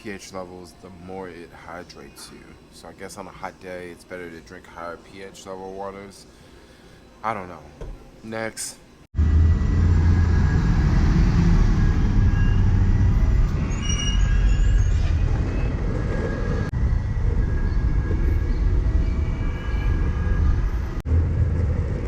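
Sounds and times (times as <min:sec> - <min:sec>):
vehicle rumbling in motion: 0:09.2 - 0:22.0
faint high-pitched squealing: 0:10.0 - 0:15.8.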